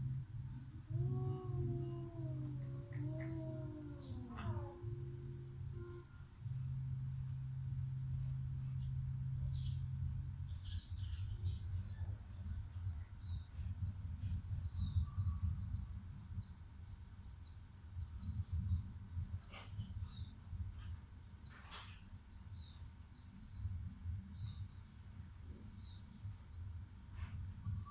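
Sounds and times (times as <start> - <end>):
low steady rumble: 0.0 - 27.9
small bird chirping: 8.2 - 16.6, 17.3 - 24.9.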